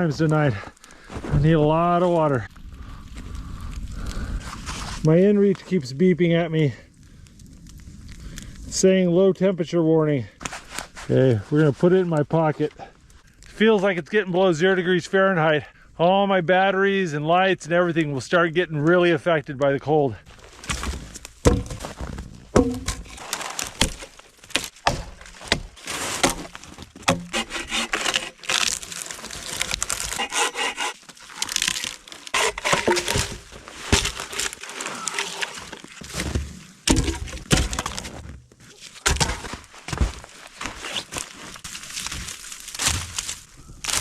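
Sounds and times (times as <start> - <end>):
rustling: 20.3 - 44.0
dry branches snapping: 20.5 - 44.0.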